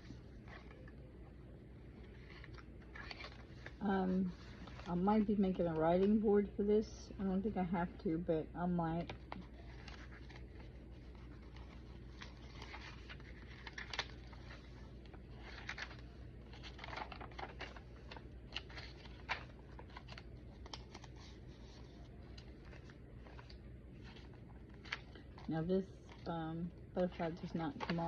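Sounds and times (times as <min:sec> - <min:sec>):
faint low hum: 0:00.0 - 0:28.0
paper pages rustling: 0:02.0 - 0:06.2, 0:09.0 - 0:25.5, 0:27.0 - 0:28.0.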